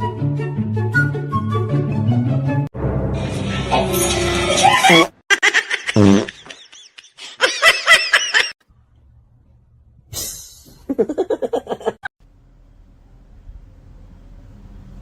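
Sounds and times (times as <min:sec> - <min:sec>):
people laughing: 0:04.4 - 0:08.6, 0:10.9 - 0:12.1.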